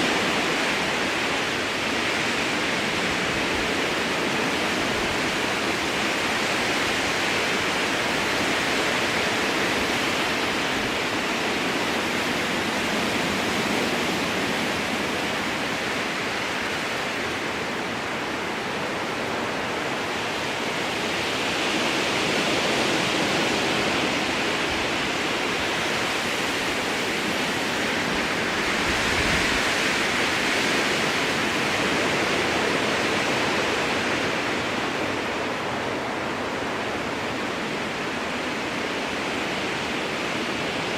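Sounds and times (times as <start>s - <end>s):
strong wind through trees: 0.0s - 40.9s.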